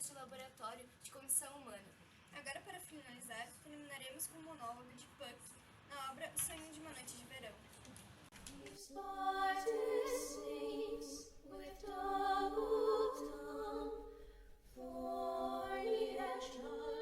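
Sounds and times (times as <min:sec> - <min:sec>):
person singing unaccompanied: 0:08.5 - 0:17.0.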